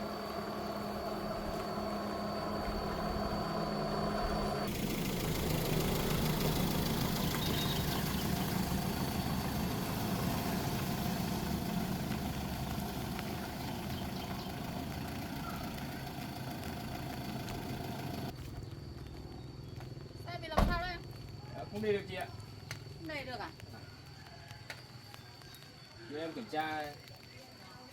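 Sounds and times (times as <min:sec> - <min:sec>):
vehicle engine running: 0:00.0 - 0:21.4.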